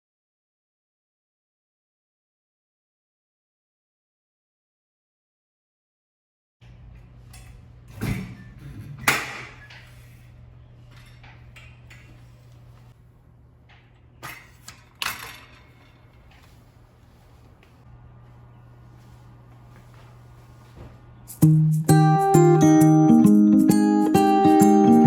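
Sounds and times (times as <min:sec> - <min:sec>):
steady low hum: 0:06.6 - 0:22.6.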